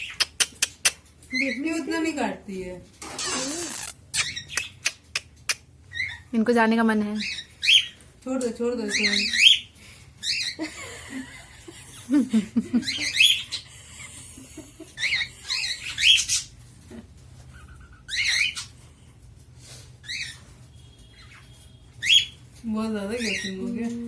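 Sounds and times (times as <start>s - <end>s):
cockatiel chirping: 15.0s - 16.5s.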